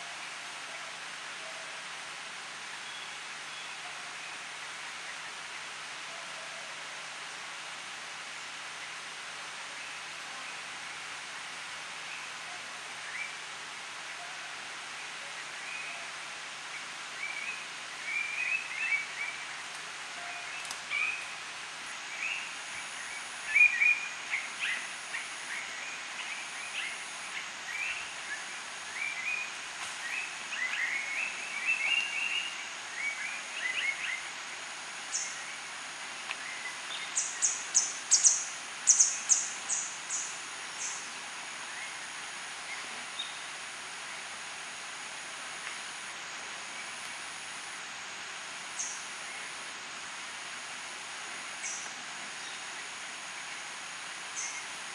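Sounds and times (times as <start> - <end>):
even hiss: 0.0 - 54.9
birds chirping and twittering: 15.4 - 43.7, 48.7 - 49.6, 51.5 - 53.6, 54.2 - 54.8.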